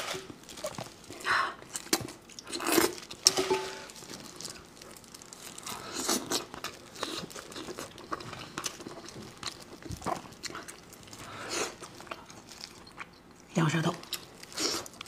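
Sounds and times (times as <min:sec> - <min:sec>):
plastic gloves crinkling: 0:00.0 - 0:13.0, 0:14.0 - 0:15.0
biting and chewing meat: 0:04.0 - 0:13.4.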